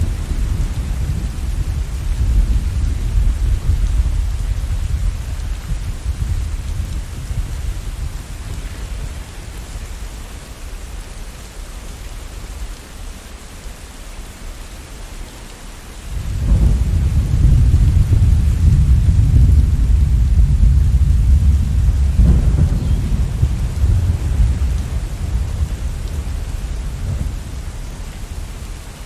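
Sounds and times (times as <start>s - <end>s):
steady rain falling: 0.0s - 29.0s
thunder rolling: 16.1s - 28.4s.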